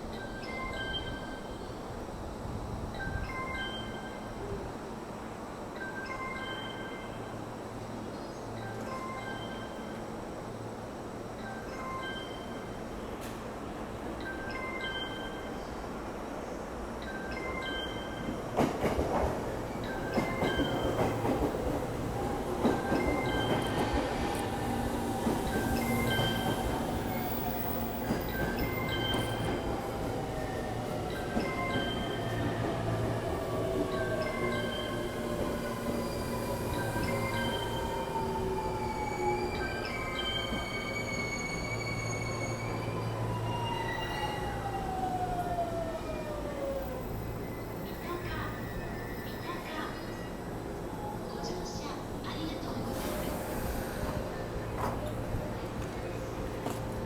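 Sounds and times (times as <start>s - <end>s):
train rumbling on rails: 17.6s - 57.0s.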